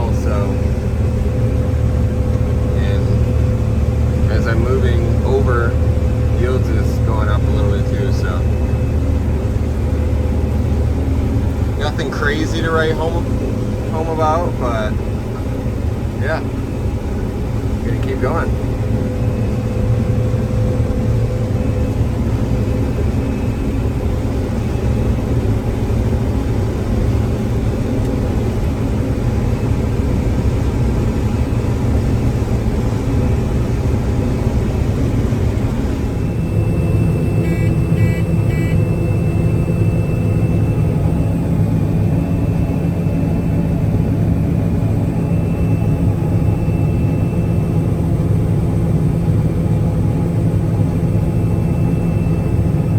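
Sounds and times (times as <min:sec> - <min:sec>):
combine harvester running: 0:00.0 - 0:52.9.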